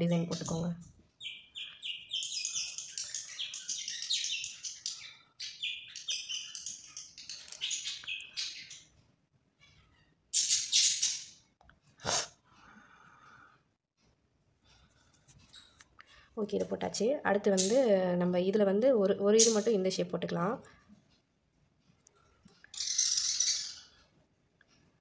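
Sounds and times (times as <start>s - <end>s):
small birds chirping: 0.0s - 11.6s, 15.4s - 18.1s, 19.3s - 19.9s, 22.5s - 24.2s.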